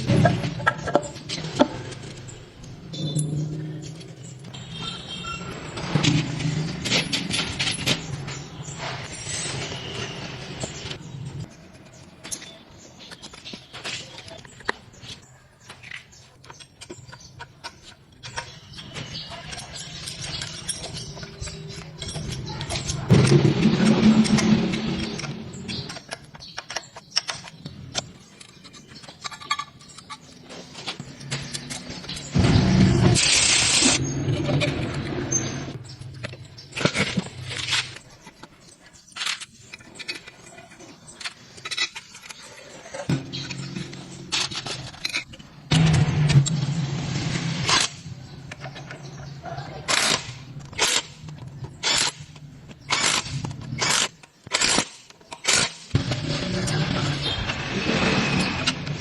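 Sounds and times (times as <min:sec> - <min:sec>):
metal tools clinking and scraping: 0:00.0 - 0:32.5, 0:33.2 - 0:59.0
scattered clicks and knocks: 0:00.0 - 0:59.0.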